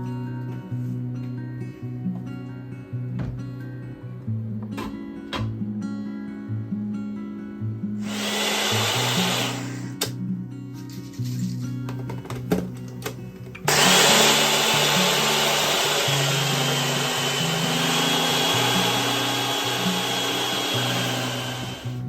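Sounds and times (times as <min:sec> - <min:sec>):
soft background music: 0:00.0 - 0:08.0, 0:09.1 - 0:22.0
electric motor high whine: 0:08.0 - 0:10.0, 0:13.7 - 0:22.0.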